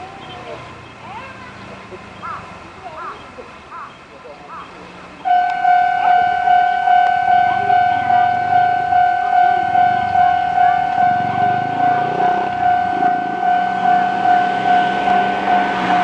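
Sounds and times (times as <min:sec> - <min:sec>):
low rumble of train: 0:00.0 - 0:16.0
level crossing warning alarm: 0:05.3 - 0:16.0.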